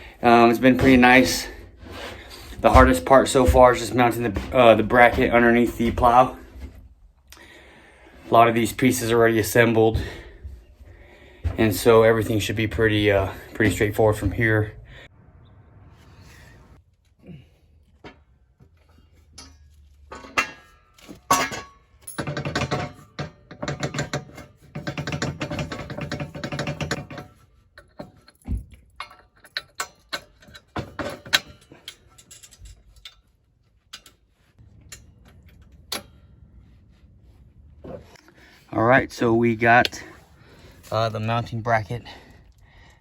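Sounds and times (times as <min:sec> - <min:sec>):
metal tools clinking and knocking: 0:00.3 - 0:06.9, 0:18.0 - 0:36.6
rapid clicking and rattling: 0:22.2 - 0:28.4.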